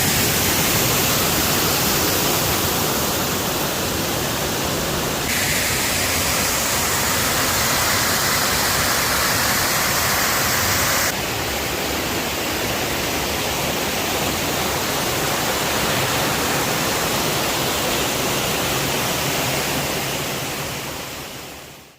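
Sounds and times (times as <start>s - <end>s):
waterfall pouring into pool: 5.3s - 11.2s.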